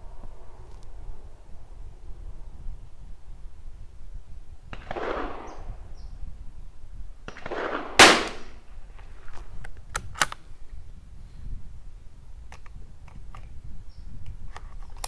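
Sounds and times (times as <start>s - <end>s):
rifle shot: 4.7s - 6.1s, 7.3s - 8.7s
rifle bolt clicking: 9.6s - 10.4s.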